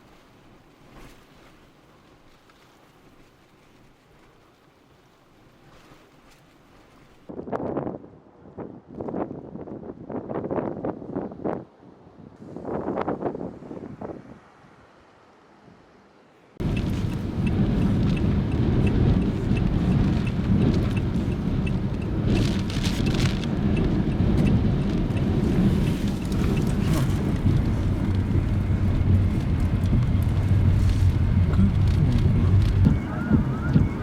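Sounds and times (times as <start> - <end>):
wind buffeting microphone: 7.2 - 14.9, 16.6 - 34.0
driving rain: 16.6 - 34.0.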